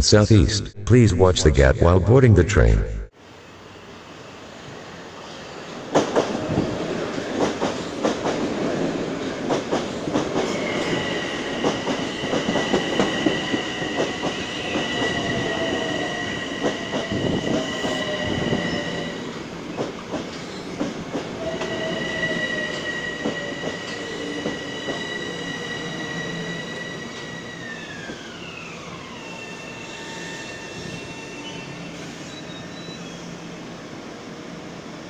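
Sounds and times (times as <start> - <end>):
electric train metallic whine: 9.9 - 35.0.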